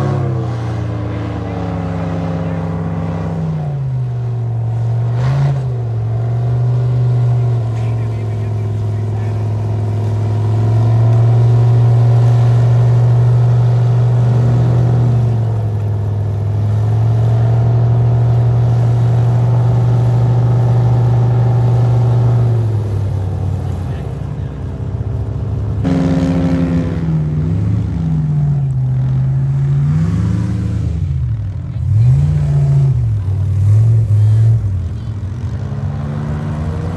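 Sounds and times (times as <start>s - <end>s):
airboat engine and propeller: 0.0s - 35.3s.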